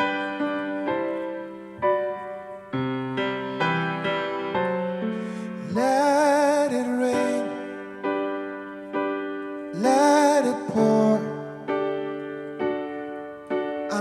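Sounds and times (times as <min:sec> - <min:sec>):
electric piano chords: 0:00.0 - 0:14.0
person singing with vibrato: 0:05.0 - 0:08.2, 0:09.6 - 0:12.1.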